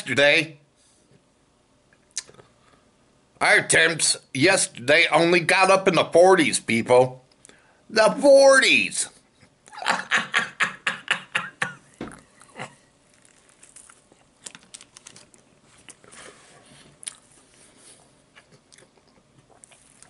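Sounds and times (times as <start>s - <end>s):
man chewing food: 11.7s - 20.0s.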